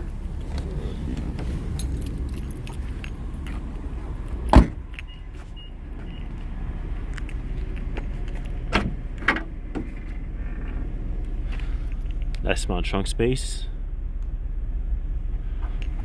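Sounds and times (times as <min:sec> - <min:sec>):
low steady rumble: 0:00.0 - 0:16.0
keys jangling: 0:01.7 - 0:03.6
car door shutting: 0:04.4 - 0:05.2, 0:08.7 - 0:10.1.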